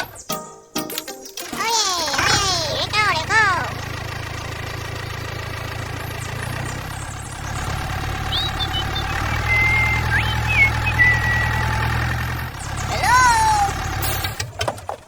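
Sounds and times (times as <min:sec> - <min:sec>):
small engine running: 0:01.5 - 0:15.0
high squeaky chirps: 0:05.0 - 0:14.4.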